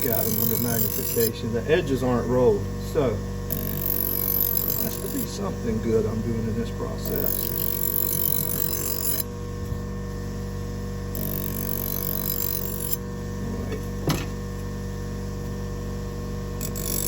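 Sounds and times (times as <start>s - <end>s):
buffer motor humming: 0.0s - 17.0s
knife on buffing wheel hiss: 3.6s - 6.2s.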